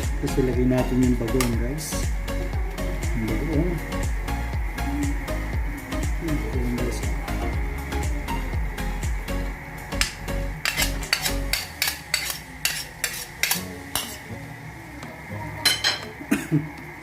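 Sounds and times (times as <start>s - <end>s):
faint sizzling: 0.0s - 17.0s
utensil scraping a pan: 10.0s - 14.3s.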